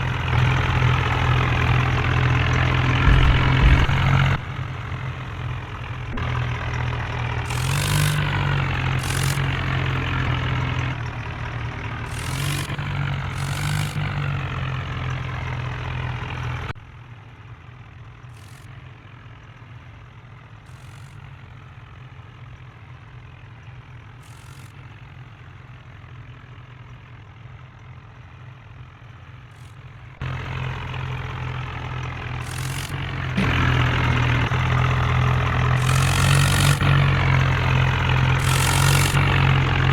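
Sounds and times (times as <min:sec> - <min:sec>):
diesel engine revving: 0:00.0 - 0:16.8, 0:29.6 - 0:39.9.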